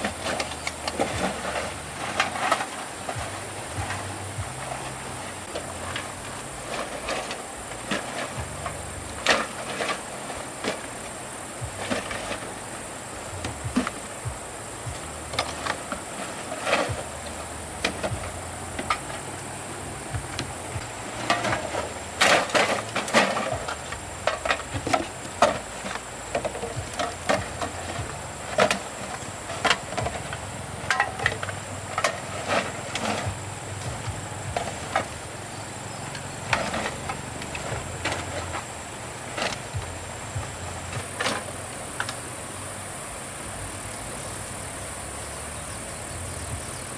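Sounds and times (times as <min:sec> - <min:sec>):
insects buzzing: 0:00.0 - 0:46.9
low hum: 0:00.0 - 0:46.9
hard objects knocking and clattering: 0:13.4 - 0:42.2.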